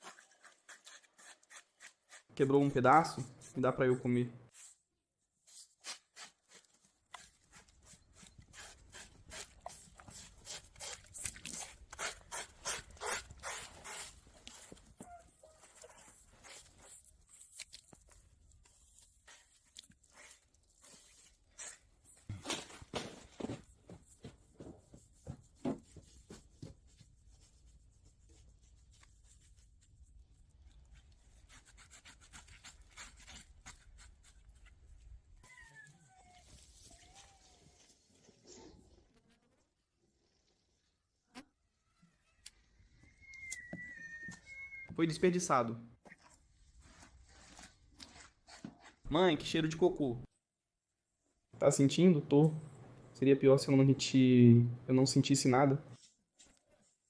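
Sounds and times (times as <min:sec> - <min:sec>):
blade scraping pig skin: 0:00.0 - 0:02.3, 0:05.5 - 0:22.3, 0:30.9 - 0:34.8.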